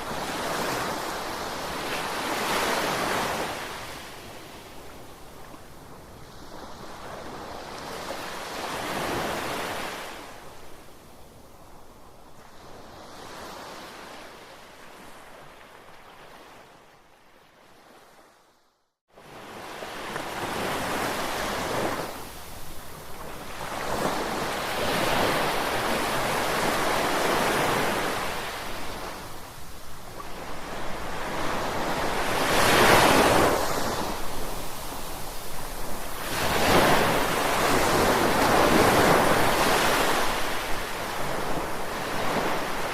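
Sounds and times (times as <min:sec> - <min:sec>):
ocean waves breaking ashore: 0:19.2 - 0:42.9.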